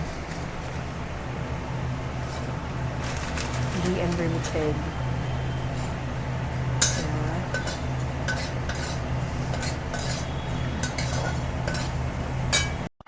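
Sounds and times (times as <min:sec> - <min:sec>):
utensil scraping a pan: 0:02.2 - 0:03.3, 0:06.8 - 0:12.9.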